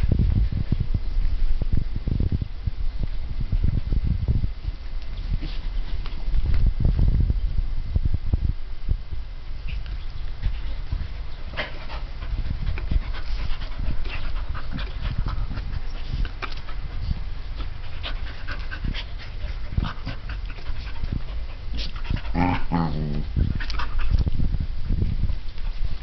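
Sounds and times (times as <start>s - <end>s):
dogs panting: 10.3s - 24.2s.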